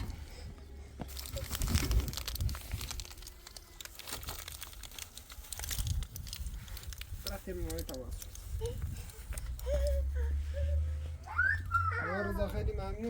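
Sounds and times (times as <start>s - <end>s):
material crinkling and rustling: 1.0s - 10.0s.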